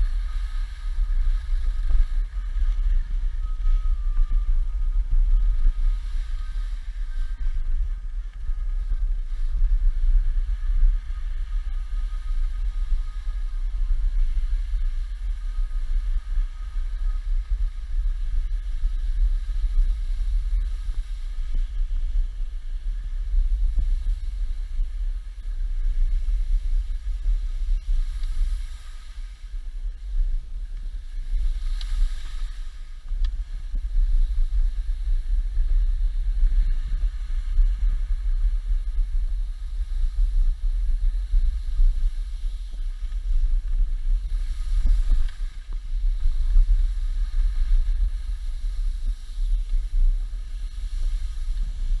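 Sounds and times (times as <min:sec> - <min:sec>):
wind buffeting microphone: 0:00.0 - 0:52.0
skis hissing on snow: 0:18.6 - 0:52.0.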